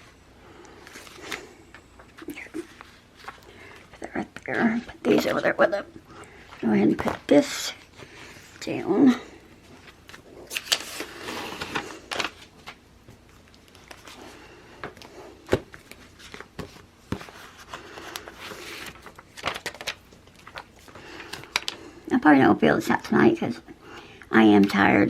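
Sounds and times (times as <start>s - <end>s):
paper rustling: 0.8s - 4.0s, 9.7s - 21.8s.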